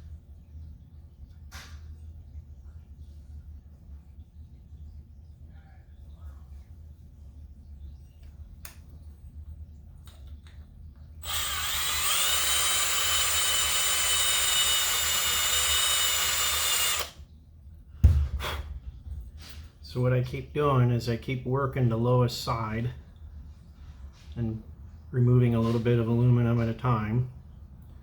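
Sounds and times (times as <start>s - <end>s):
electric drill whining: 11.2s - 17.2s.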